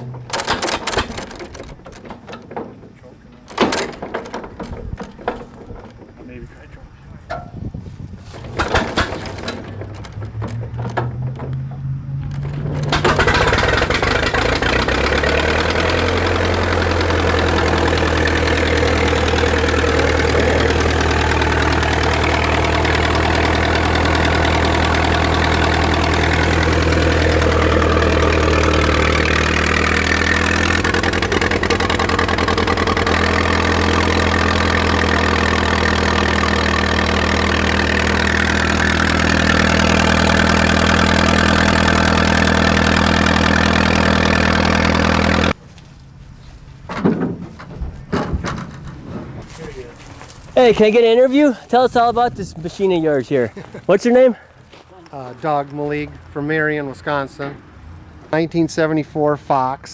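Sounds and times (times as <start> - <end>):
engine idling loudly: 8.4 - 45.6.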